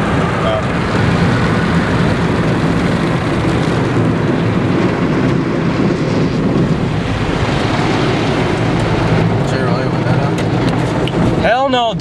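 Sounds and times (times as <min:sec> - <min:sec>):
car wash water and brushes: 0:00.0 - 0:12.0.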